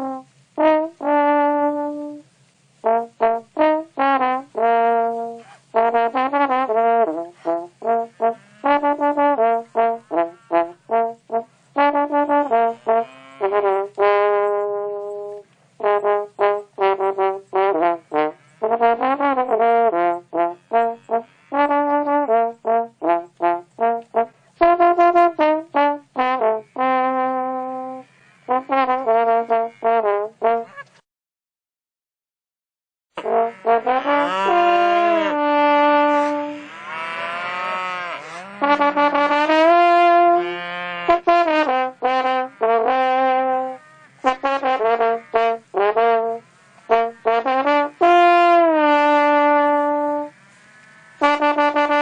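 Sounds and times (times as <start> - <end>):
brass-toned melody: 0.0 - 30.8, 33.2 - 52.0.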